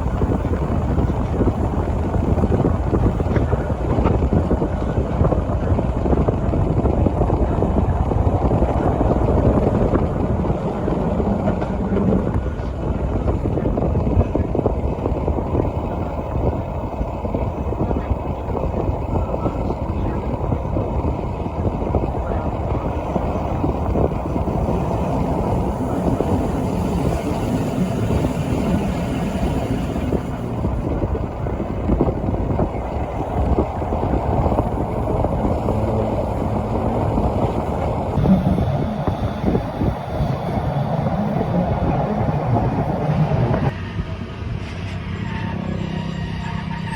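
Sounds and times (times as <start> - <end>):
train wheels rumbling: 0.0 - 46.9.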